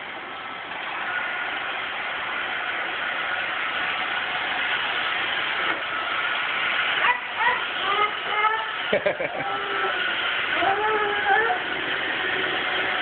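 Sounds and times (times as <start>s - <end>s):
robot vacuum whirring: 2.3s - 13.0s.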